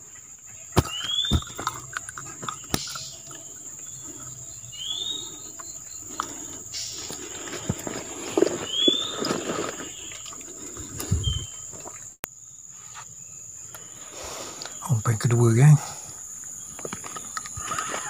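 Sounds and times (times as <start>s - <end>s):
fish being handled: 6.1s - 12.0s.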